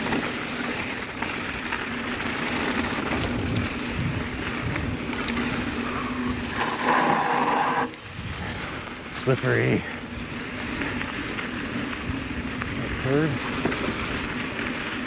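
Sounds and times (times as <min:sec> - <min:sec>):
tyre and trail noise: 0:00.0 - 0:15.0
bike clicks and knocks: 0:01.4 - 0:06.6
wind on microphone: 0:08.0 - 0:08.8.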